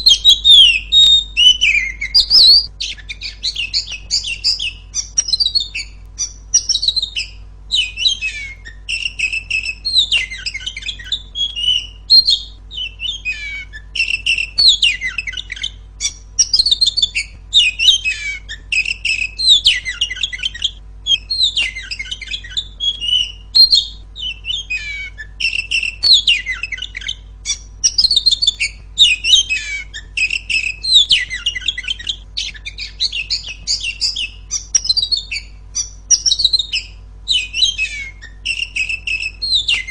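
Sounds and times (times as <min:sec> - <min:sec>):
bird shrill chirping: 0:00.0 - 0:39.9.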